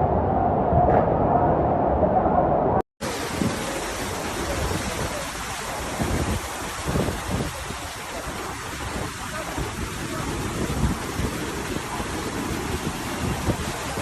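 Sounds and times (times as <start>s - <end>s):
heavy rain: 3.0s - 14.0s
rushing floodwater: 3.0s - 14.0s.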